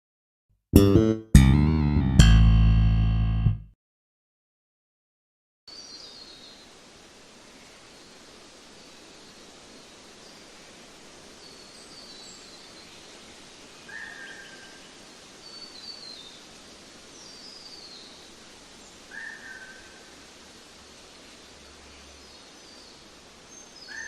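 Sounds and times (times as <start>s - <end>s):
outdoor hiss: 5.7s - 24.0s.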